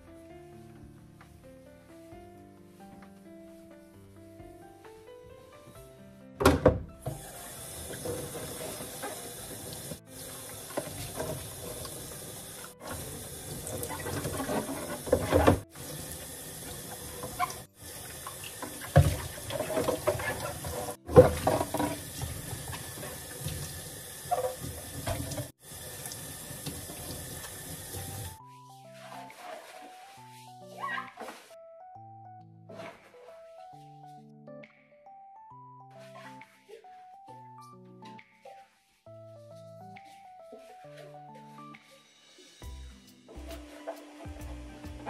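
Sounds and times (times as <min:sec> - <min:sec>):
tap running into a sink: 0:06.4 - 0:28.4
knocks and clatter in basin: 0:07.8 - 0:10.0, 0:10.7 - 0:12.2, 0:12.8 - 0:15.7, 0:18.6 - 0:23.7, 0:24.3 - 0:25.5.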